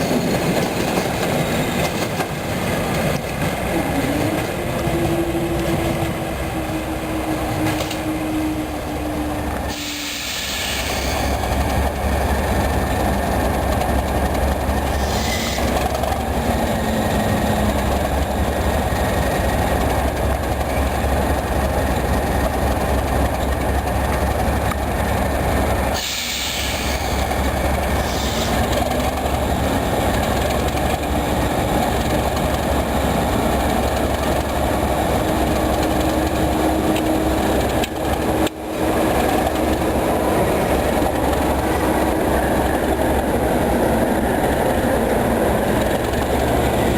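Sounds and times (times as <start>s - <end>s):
diesel locomotive engine: 0.0s - 46.9s
train wheels on rails: 0.0s - 46.9s.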